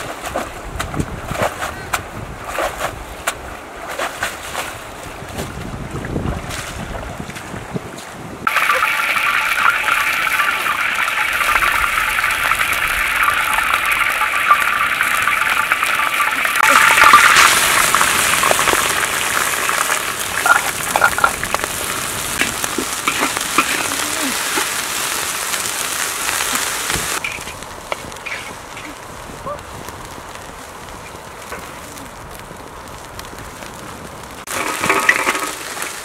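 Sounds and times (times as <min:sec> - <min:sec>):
spice paste sizzling in a wok: 0:08.5 - 0:36.0.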